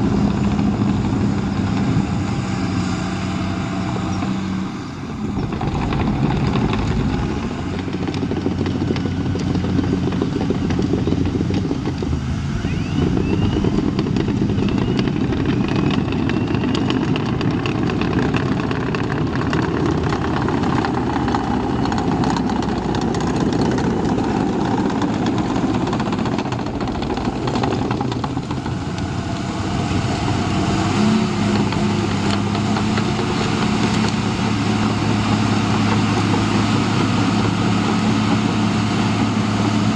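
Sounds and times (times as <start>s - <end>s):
diesel engine running: 0.0s - 39.9s
tracks clattering: 5.1s - 39.9s
faint high squeals: 12.2s - 17.0s.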